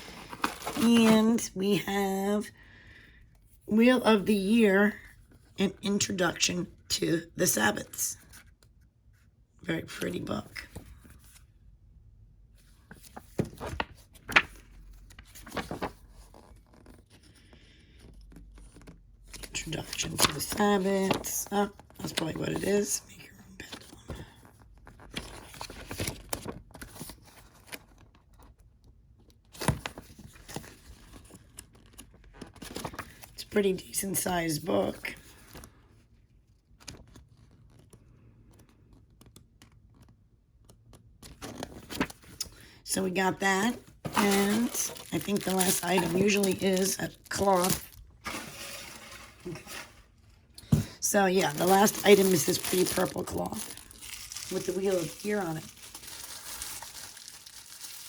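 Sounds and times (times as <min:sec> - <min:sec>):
paper rustling: 0:00.0 - 0:01.5, 0:12.8 - 0:17.4, 0:18.6 - 0:22.9, 0:23.7 - 0:28.1, 0:29.6 - 0:33.4, 0:41.2 - 0:58.0.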